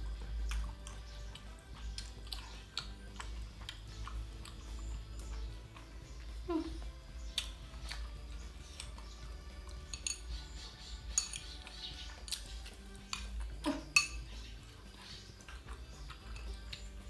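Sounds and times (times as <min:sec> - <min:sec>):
utensils clinking on dishware: 0:09.7 - 0:12.4, 0:13.1 - 0:14.8, 0:15.4 - 0:16.9.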